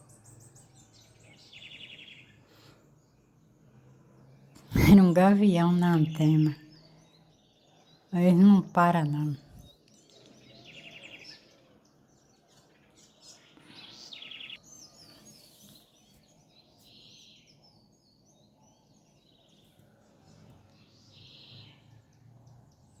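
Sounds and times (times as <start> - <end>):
birds chirping and trilling: 0.0 - 3.6, 4.2 - 23.0.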